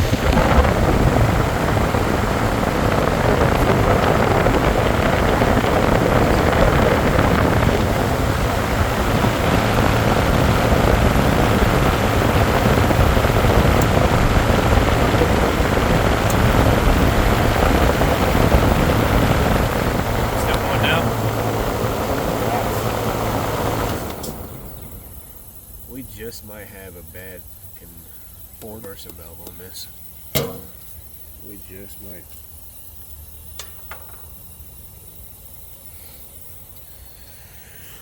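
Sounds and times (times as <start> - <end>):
low compressor hum: 0.0 - 28.6, 29.9 - 32.0
fan rushing air: 0.0 - 38.0.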